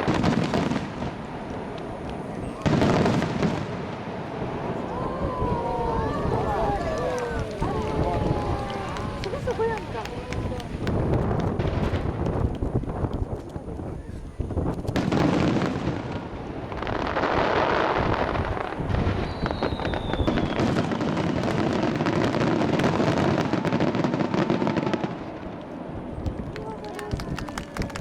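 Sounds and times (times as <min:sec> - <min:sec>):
fireworks bursts and crackling: 0:00.0 - 0:28.0
falling firework whistle: 0:18.6 - 0:25.2.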